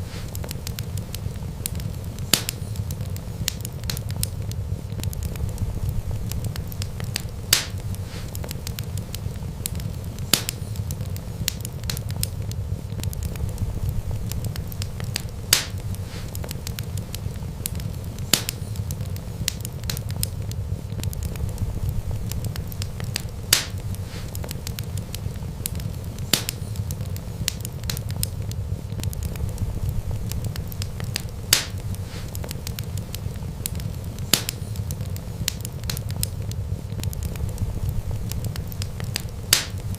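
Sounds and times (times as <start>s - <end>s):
sharp pops of fire: 0.0s - 39.9s
wood fire crackling: 0.0s - 39.9s
low rumble: 4.4s - 8.1s, 12.4s - 16.4s, 20.1s - 26.0s, 28.0s - 34.2s, 36.1s - 39.9s.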